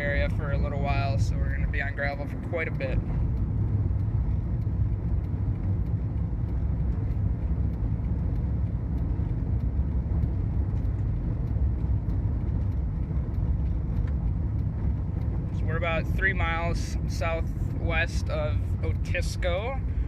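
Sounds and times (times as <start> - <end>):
faint light ticks: 0.0 - 20.0.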